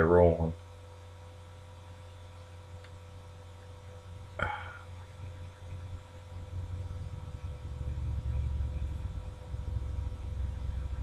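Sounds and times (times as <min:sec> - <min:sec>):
low electrical hum: 0:00.0 - 0:11.0
low rumble: 0:03.9 - 0:11.0.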